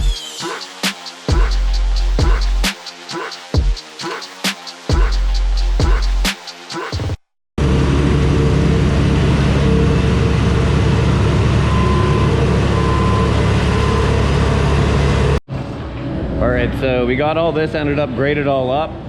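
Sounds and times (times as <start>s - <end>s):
machine engine running loud: 7.6s - 16.7s.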